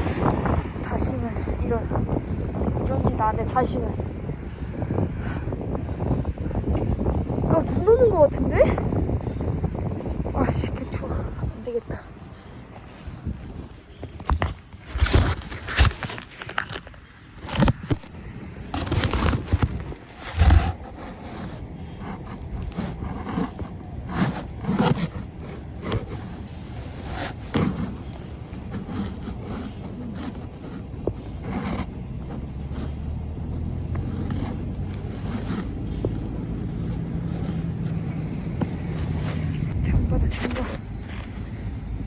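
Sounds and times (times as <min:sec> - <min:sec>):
steady low rumble: 0:00.0 - 0:14.2, 0:18.0 - 0:42.0
clothing rustling: 0:10.7 - 0:18.1, 0:18.7 - 0:41.7
zipper being worked: 0:18.8 - 0:41.5.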